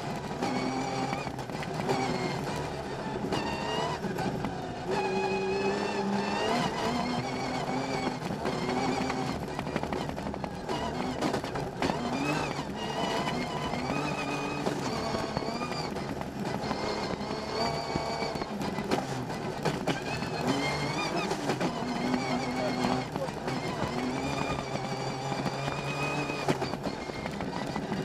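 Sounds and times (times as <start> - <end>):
rally car engine revving: 0.0 - 28.0
sharp clicks and knocks: 7.8 - 28.0.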